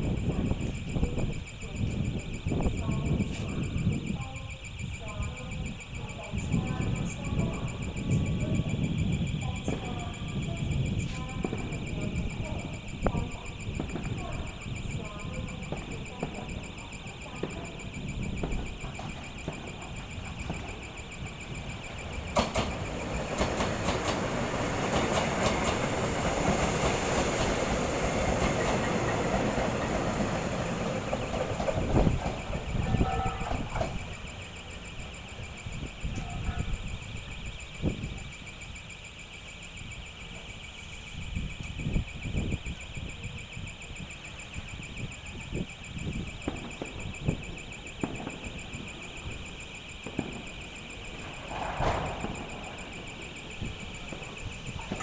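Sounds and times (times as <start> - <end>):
high electronic warning tone: 0.0 - 55.0
train wheels rumbling: 18.4 - 34.8
scattered knocks: 21.8 - 27.0
rail clatter: 21.8 - 34.1.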